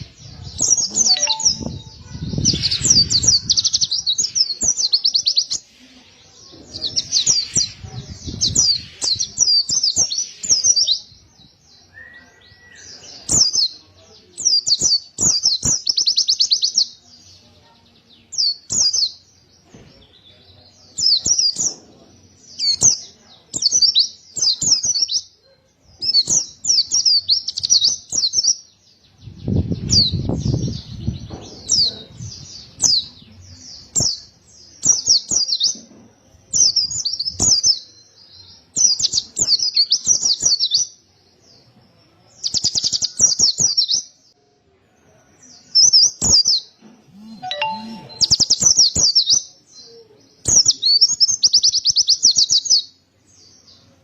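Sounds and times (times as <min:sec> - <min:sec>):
bird singing high phrases: 0:00.0 - 0:05.7, 0:45.6 - 0:53.9.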